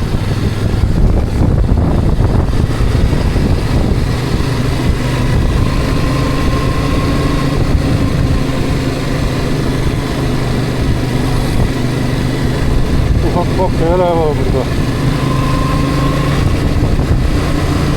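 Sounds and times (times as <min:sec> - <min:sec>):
vehicle engine and road noise: 0:00.0 - 0:17.9.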